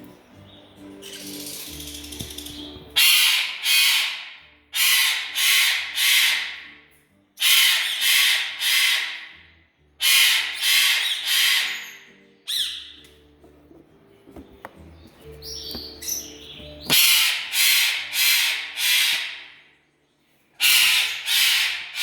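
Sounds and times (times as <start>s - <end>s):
pet bird screeching: 1.0s - 6.8s, 7.4s - 9.4s, 10.0s - 13.0s, 15.8s - 19.6s, 20.6s - 22.0s.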